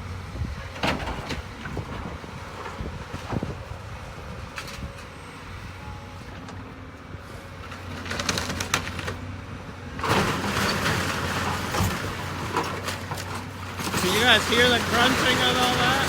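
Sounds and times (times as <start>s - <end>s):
diesel engine running: 0.0s - 16.0s
crunching and falling debris: 10.0s - 16.0s.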